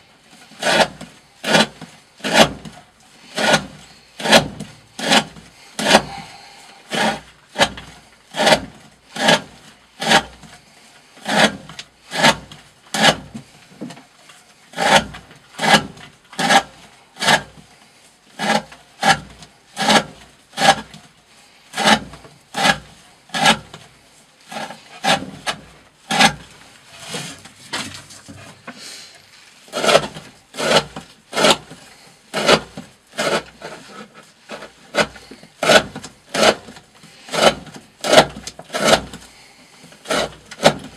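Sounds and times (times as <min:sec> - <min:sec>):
knife slicing rope: 0:00.6 - 0:10.4, 0:29.7 - 0:39.2.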